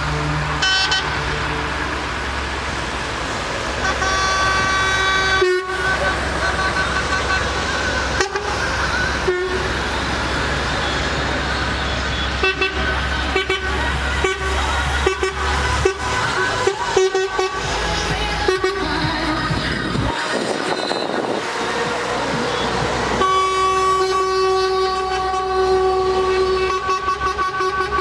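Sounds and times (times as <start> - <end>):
truck engines running: 0.0 - 28.0
truck horns tooting: 0.0 - 28.0.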